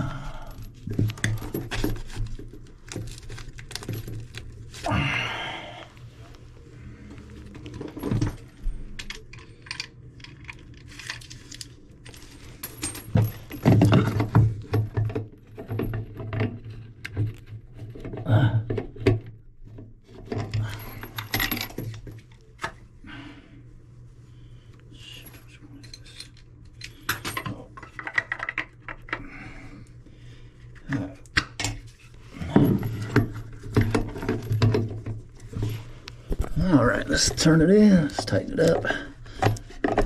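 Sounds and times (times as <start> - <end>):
metal parts and tools clinking: 7.6 - 18.3, 20.2 - 22.3, 25.2 - 29.2, 31.6 - 40.0.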